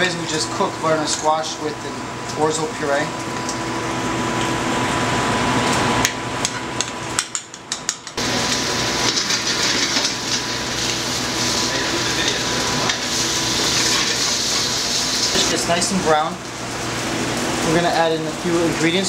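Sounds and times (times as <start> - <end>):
utensils clicking against pan: 6.4 - 8.2
fish sizzling in a pan: 8.2 - 18.8.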